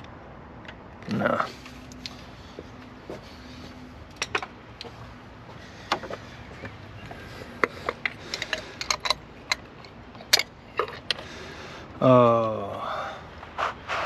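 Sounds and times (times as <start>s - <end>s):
metallic clicks of hand tools: 7.6s - 11.2s.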